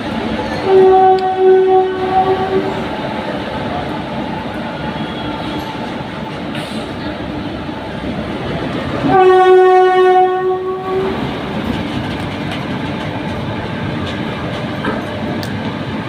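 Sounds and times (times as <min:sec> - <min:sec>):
train rumbling and clattering: 0:00.0 - 0:16.0
train horn blast: 0:00.6 - 0:02.9, 0:09.0 - 0:11.4.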